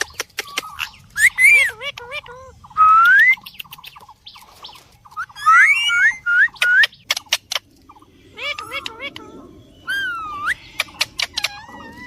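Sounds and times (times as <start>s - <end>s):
sharp clicks: 3.0s - 4.2s
parrot whistling: 5.2s - 6.9s.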